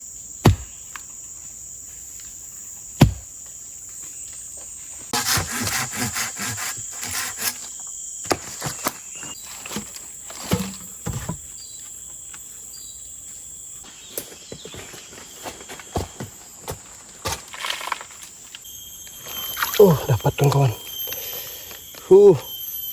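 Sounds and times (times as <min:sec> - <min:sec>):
high-pitched insect drone: 0:18.2 - 0:22.9.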